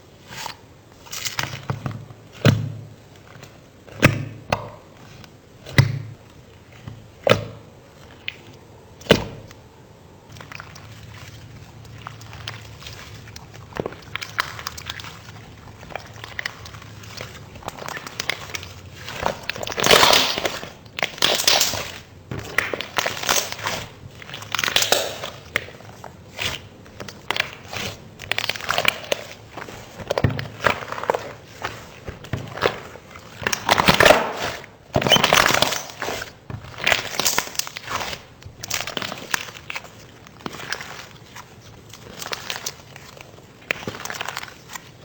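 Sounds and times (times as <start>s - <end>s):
slime squished by hand: 10.2s - 45.0s.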